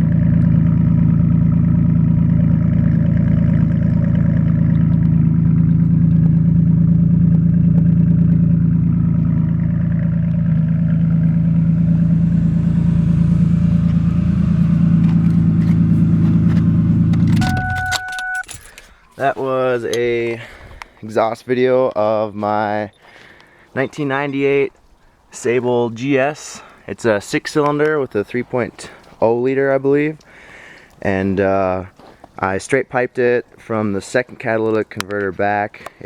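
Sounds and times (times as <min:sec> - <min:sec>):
car engine idling loud drone: 0:00.0 - 0:19.3.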